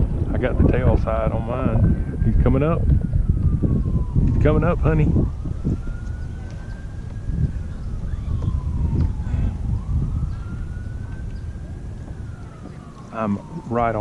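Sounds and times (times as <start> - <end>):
low rumble: 0.0 - 14.0
wailing emergency siren: 0.0 - 14.0.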